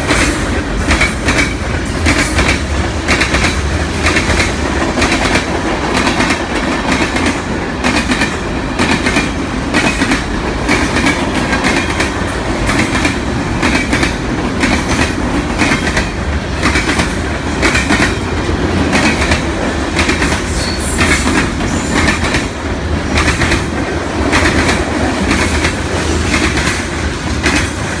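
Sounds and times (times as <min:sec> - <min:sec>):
freight train rumbling past: 0:00.0 - 0:28.0.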